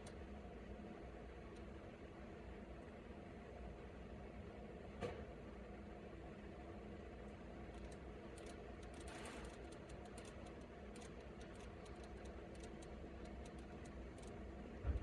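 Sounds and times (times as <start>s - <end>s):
faint irregular clicks: 7.7s - 14.8s.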